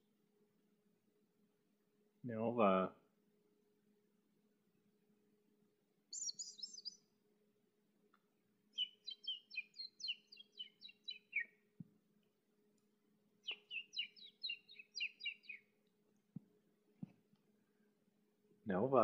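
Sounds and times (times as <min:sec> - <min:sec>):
songbird chirping: 0:05.0 - 0:17.9.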